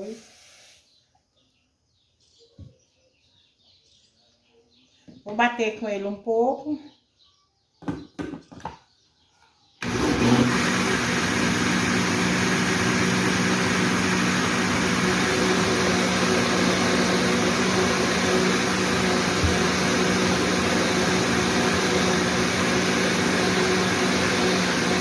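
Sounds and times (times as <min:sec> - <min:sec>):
blender running: 0:09.8 - 0:25.0.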